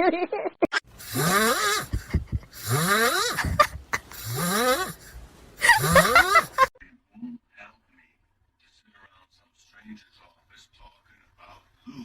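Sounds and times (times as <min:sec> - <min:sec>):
wheezy harsh rising calls: 0:01.0 - 0:06.7.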